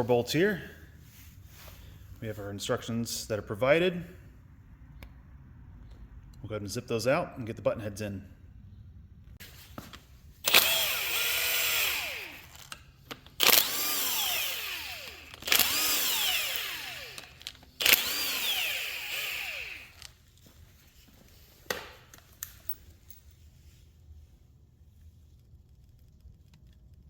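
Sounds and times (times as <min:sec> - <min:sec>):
power driver motor whine: 0:10.4 - 0:12.7, 0:13.4 - 0:20.1.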